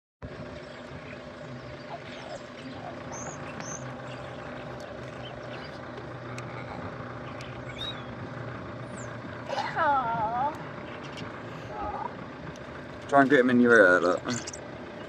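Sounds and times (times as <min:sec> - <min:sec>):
low engine-like hum: 0:00.2 - 0:15.0
high bird chirps: 0:00.6 - 0:08.2, 0:10.6 - 0:11.5, 0:14.1 - 0:14.7.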